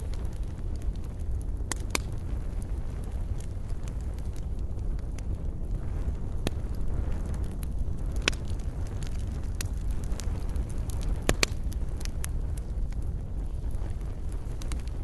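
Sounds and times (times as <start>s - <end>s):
burning wood crackles and pops: 0.0s - 15.0s
campfire flame rumble: 0.0s - 15.0s.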